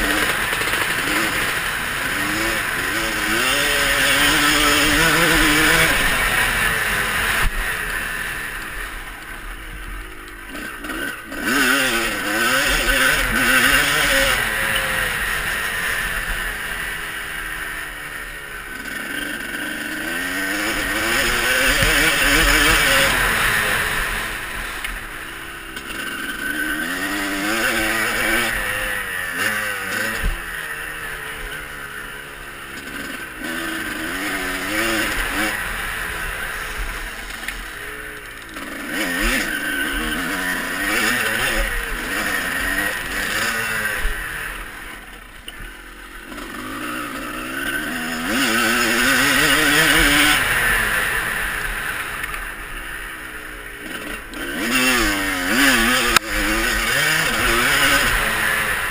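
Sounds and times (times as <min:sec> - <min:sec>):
motocross bike engines revving: 0:00.0 - 0:58.9.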